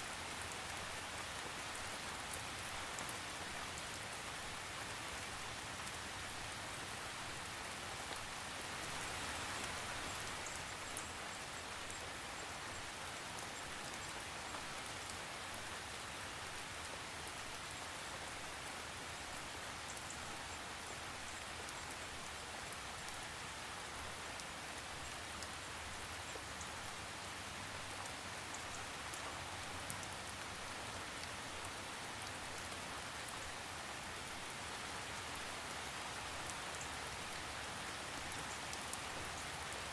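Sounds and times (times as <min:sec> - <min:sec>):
raindrops ticking on a surface: 0:00.0 - 0:39.9
steady rain hiss: 0:00.0 - 0:39.9.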